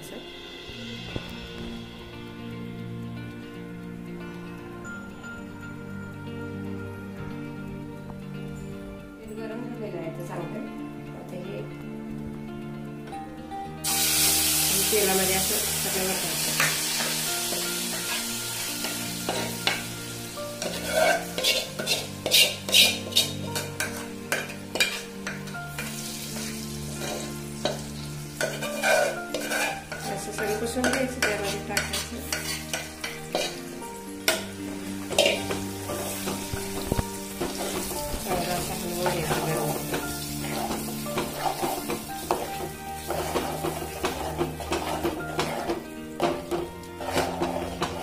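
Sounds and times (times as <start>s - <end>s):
hot oil sizzling: 13.6s - 48.0s
spoon scraping a pot: 20.6s - 34.5s, 35.1s - 36.5s, 39.3s - 48.0s.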